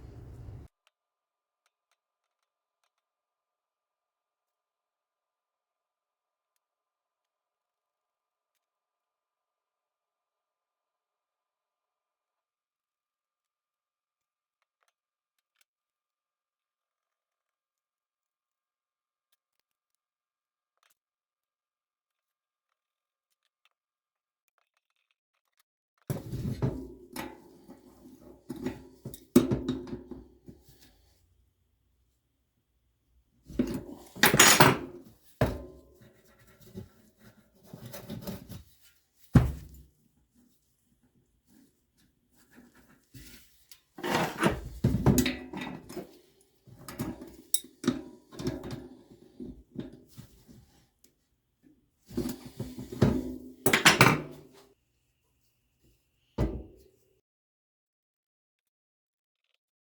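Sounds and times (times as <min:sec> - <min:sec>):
hard objects clattering: 0:00.0 - 0:00.7, 0:33.5 - 0:35.9
hard objects knocking and clattering: 0:00.0 - 0:00.7, 0:26.1 - 0:30.7, 0:33.5 - 0:37.0, 0:39.4 - 0:39.8, 0:44.0 - 0:46.2, 0:52.1 - 0:54.6.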